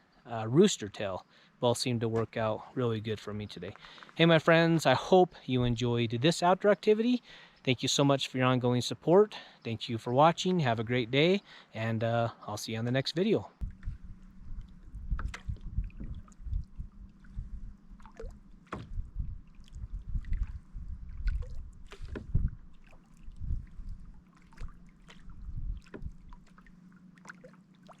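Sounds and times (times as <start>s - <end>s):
water sloshing against hull: 13.6s - 28.0s
knocks and thumps on kayak hull: 18.6s - 19.2s, 21.9s - 22.5s, 25.5s - 26.2s.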